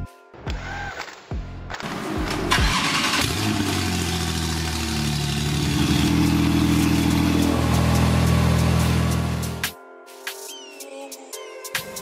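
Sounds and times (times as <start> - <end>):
car engine idling: 2.3 - 9.7.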